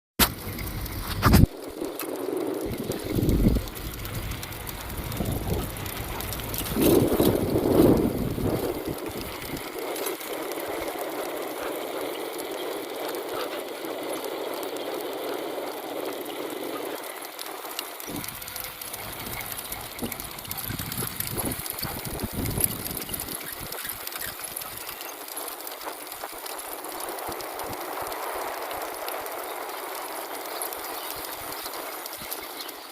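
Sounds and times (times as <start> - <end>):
bicycle rattle and hiss: 0.2 - 32.9
low rumble: 0.3 - 11.7.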